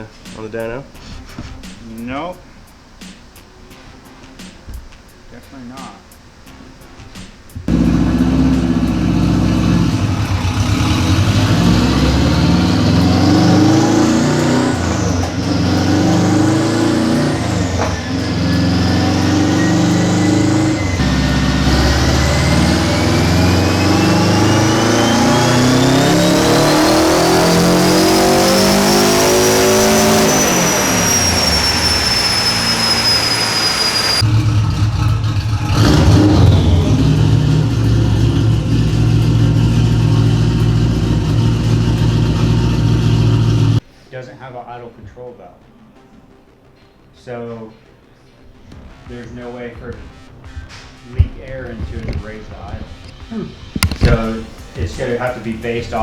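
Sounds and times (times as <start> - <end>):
race car engine revving: 7.7 - 43.8, 53.8 - 56.0
turbo whine: 7.7 - 43.8, 53.8 - 56.0.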